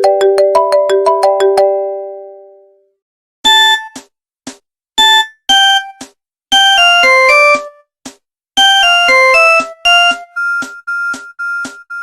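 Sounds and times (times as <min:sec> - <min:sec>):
mobile phone ringtone: 0:00.0 - 0:02.5, 0:08.6 - 0:12.0.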